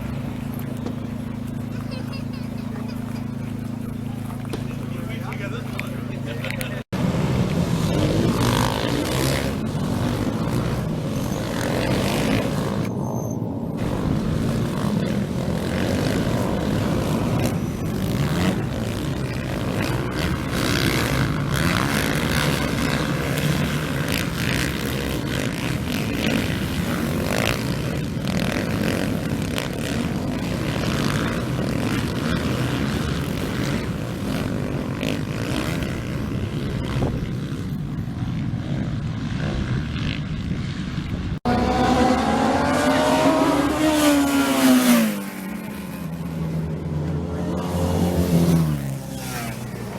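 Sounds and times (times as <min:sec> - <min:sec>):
motorcycle engine revving: 0:00.0 - 0:49.9
racing motorcycle engines rumbling: 0:00.0 - 0:49.9.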